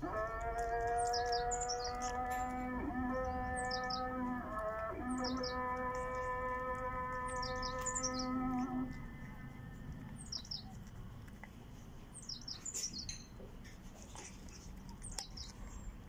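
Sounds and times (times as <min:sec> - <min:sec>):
held pitched tone: 0:00.0 - 0:09.2
low outdoor rumble: 0:00.0 - 0:16.0
small birds chirping: 0:00.0 - 0:16.0.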